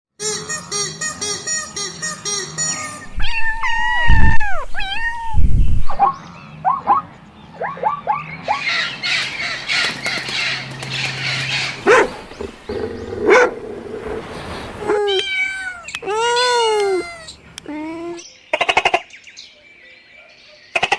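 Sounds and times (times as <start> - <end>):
dogs yelping and barking: 1.4 - 5.1, 5.9 - 9.6, 11.1 - 16.3
animal arching cries: 14.8 - 17.4.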